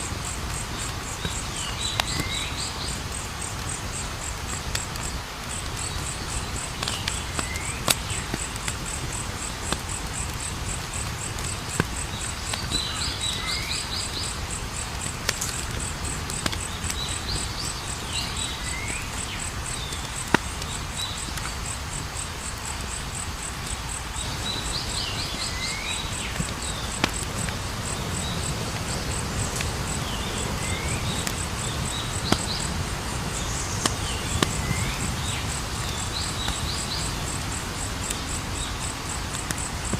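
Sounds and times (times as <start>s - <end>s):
campfire crackling and popping: 0.0s - 39.9s
high insect trill: 0.0s - 39.9s.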